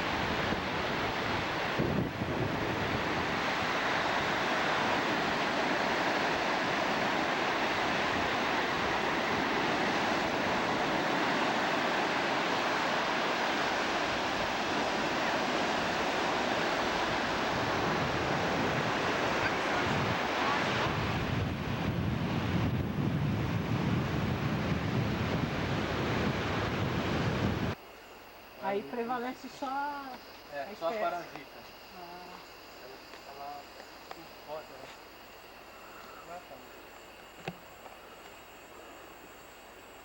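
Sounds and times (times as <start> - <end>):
ocean surf on beach: 0.0 - 27.8
wind buffeting microphone: 0.0 - 27.8.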